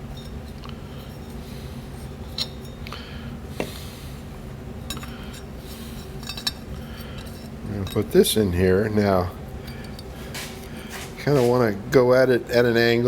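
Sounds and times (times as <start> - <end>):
steady low hum: 0.0 - 13.0
metal parts clinking: 4.9 - 8.4.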